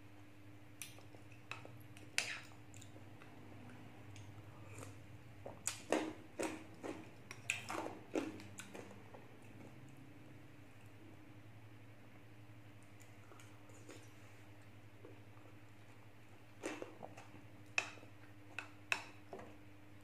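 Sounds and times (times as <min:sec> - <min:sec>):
wet crunching and chewing: 0:00.8 - 0:10.0, 0:15.0 - 0:19.0.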